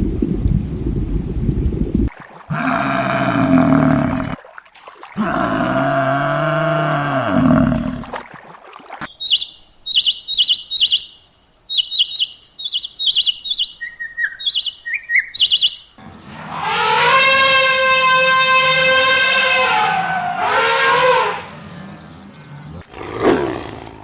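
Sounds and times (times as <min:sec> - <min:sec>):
bird chirping: 0:09.1 - 0:16.5, 0:20.9 - 0:23.6
horn-like pitched call: 0:16.4 - 0:21.9.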